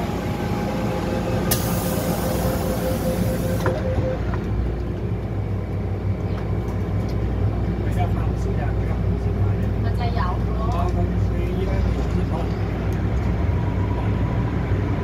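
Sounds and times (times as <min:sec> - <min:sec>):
electric train braking whine: 0:00.0 - 0:04.8
low steady train hum: 0:00.0 - 0:15.0.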